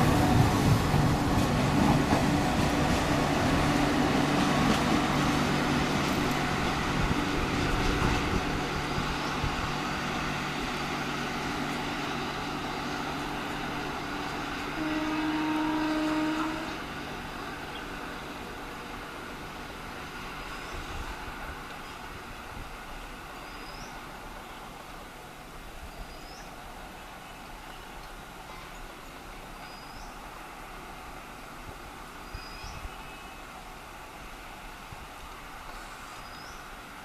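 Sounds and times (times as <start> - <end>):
train rumble and wheel noise: 0.0 - 37.0.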